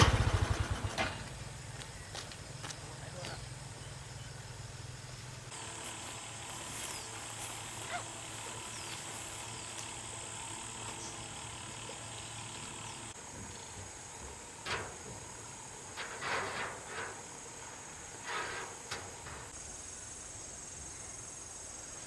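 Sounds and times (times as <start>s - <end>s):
high-pitched insect drone: 3.5s - 15.8s
rustling or scraping: 15.8s - 19.6s.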